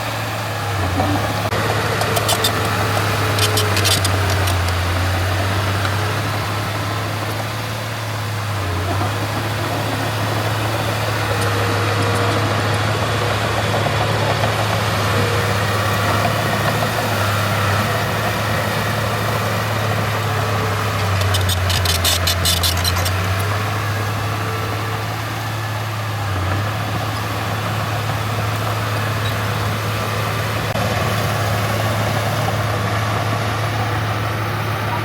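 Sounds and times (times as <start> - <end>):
diesel engine low drone: 0.0 - 35.0
rapid metallic clatter: 21.0 - 23.5.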